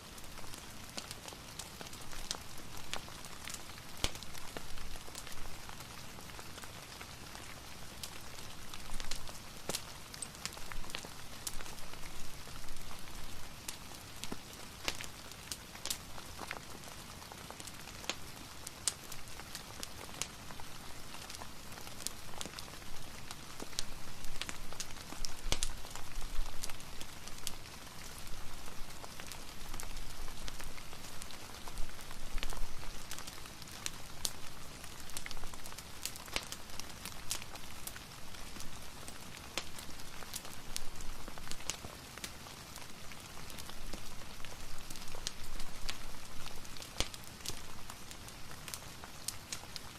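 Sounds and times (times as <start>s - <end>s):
steady rain: 0.0s - 49.9s
wood fire crackling: 0.0s - 49.9s.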